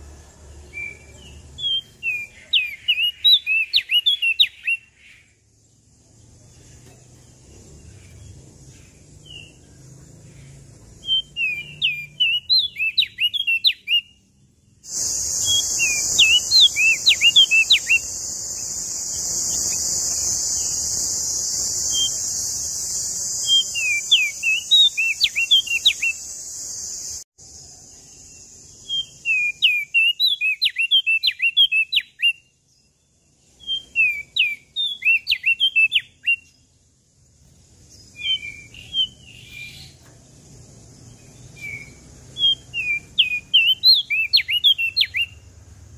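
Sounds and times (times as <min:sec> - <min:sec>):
bird singing whistled notes: 0:00.0 - 0:05.5, 0:06.3 - 0:27.2, 0:27.8 - 0:36.8, 0:37.8 - 0:40.1, 0:40.9 - 0:45.5
steady high hiss: 0:14.8 - 0:29.7.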